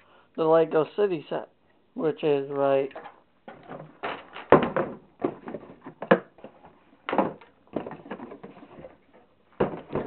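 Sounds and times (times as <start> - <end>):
plastic toys knocking and clattering: 2.9 - 10.0.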